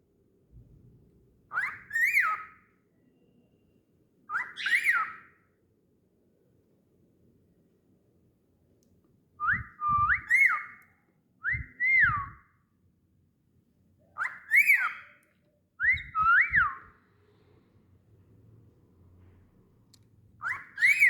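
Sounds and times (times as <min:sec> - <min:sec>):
cockatiel whistling: 0:01.5 - 0:02.6, 0:04.3 - 0:05.3, 0:09.4 - 0:10.8, 0:11.5 - 0:12.4, 0:14.2 - 0:15.2, 0:15.8 - 0:16.9, 0:20.4 - 0:21.0.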